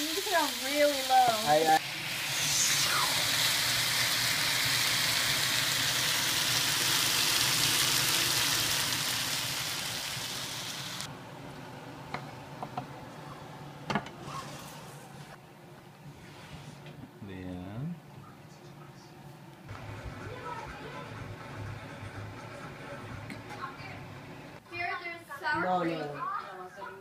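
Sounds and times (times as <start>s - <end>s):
food sizzling in frying pan: 0.0s - 11.1s.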